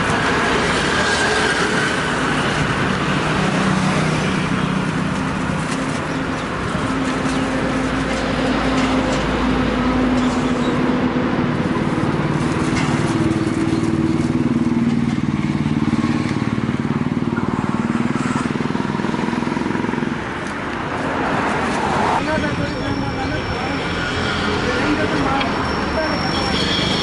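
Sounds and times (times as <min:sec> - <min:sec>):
road traffic noise: 0:00.0 - 0:27.0
motorcycle engine running: 0:11.6 - 0:20.2.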